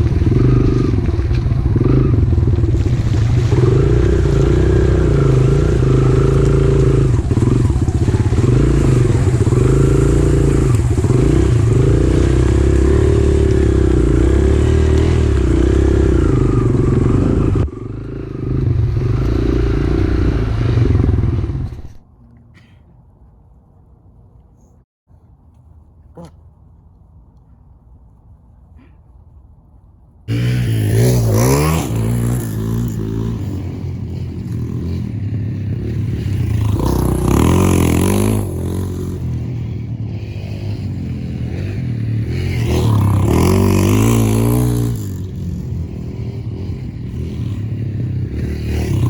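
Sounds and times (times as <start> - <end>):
motorcycle engine revving: 0.0 - 22.0, 30.3 - 49.0.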